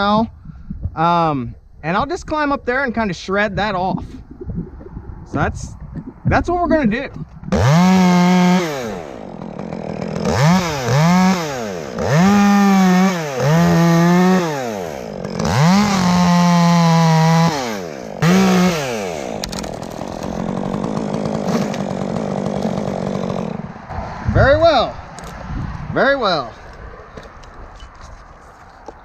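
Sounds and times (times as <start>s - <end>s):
chainsaw engine revving: 7.5s - 24.0s.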